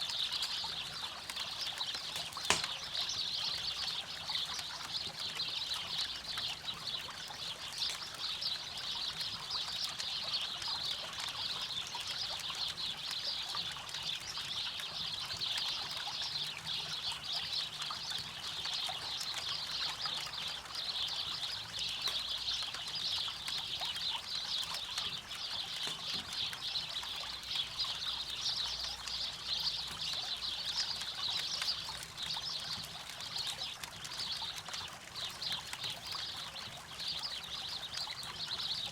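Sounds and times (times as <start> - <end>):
river water trickling: 0.0 - 38.9
campfire crackling: 0.4 - 3.4.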